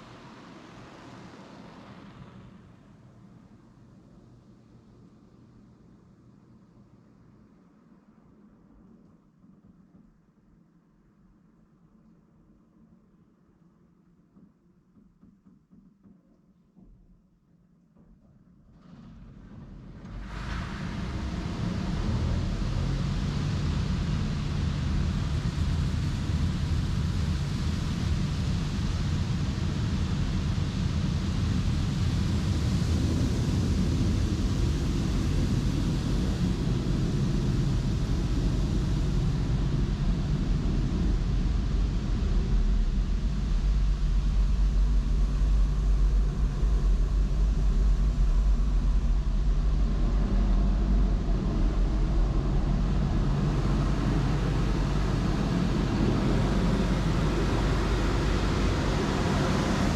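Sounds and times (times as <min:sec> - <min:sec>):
low motor hum: 0:19.0 - 0:59.9.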